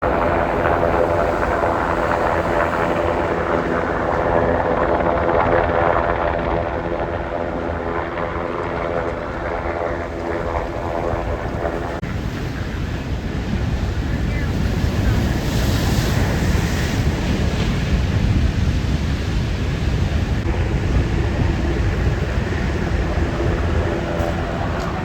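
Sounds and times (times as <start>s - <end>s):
helicopter rotor and engine drone: 0.0s - 25.0s.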